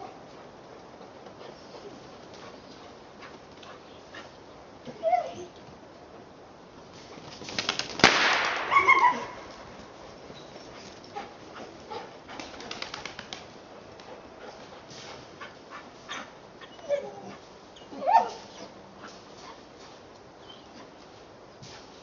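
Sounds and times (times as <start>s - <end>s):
pigeon wings flapping: 7.1s - 9.1s, 12.4s - 14.1s
shotgun shot: 8.0s - 9.0s.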